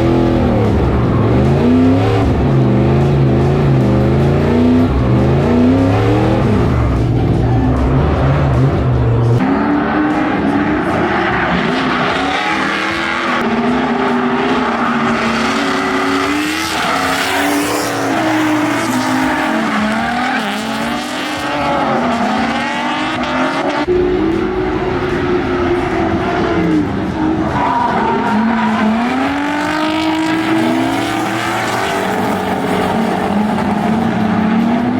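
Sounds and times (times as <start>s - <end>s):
engine revving: 0.0s - 34.9s
tyres squealing: 14.8s - 22.4s.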